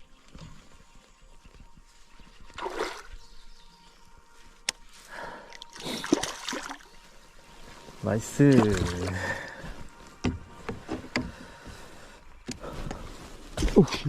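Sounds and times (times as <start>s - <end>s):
water splashing beside a kayak: 5.7s - 6.9s, 8.2s - 9.7s.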